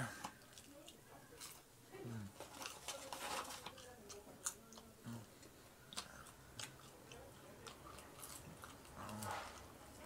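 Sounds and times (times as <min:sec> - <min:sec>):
person chewing crunchy food: 0:03.7 - 0:10.0.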